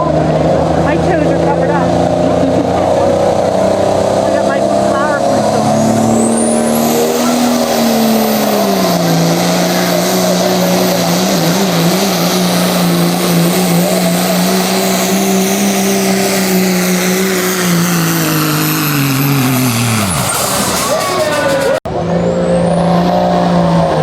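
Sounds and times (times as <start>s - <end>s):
diesel engine at full throttle: 0.0s - 24.0s
high turbo whistle: 5.2s - 23.3s.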